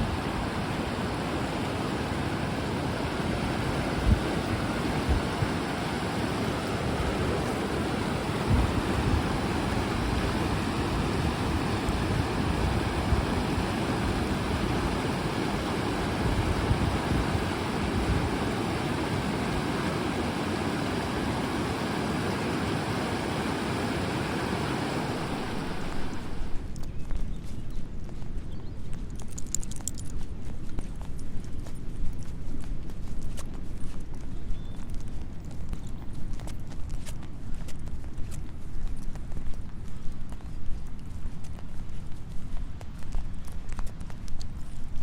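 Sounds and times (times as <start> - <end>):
river water rushing over falls: 0.0 - 26.6.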